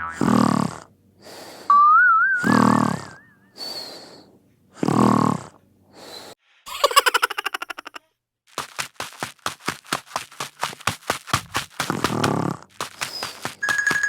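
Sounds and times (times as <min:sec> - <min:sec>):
wobbling boing tone: 0:00.0 - 0:00.3
comic snoring: 0:00.0 - 0:00.9, 0:02.4 - 0:03.2, 0:04.8 - 0:06.2, 0:11.9 - 0:12.7.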